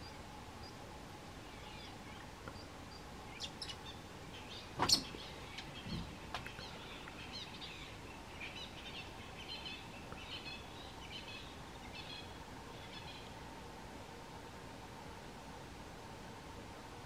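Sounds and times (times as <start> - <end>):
small birds chirping: 0.0 - 13.4
steady outdoor hiss: 0.0 - 17.0.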